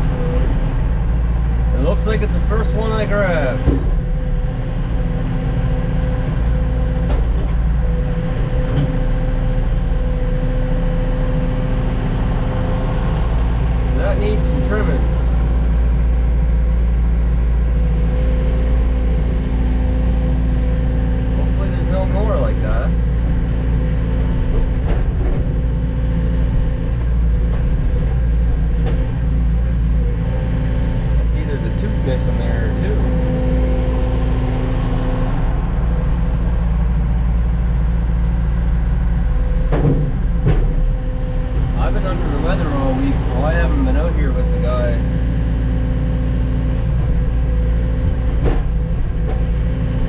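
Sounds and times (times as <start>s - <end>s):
diesel engine under load: 0.0s - 50.0s
steady whine: 30.9s - 49.7s.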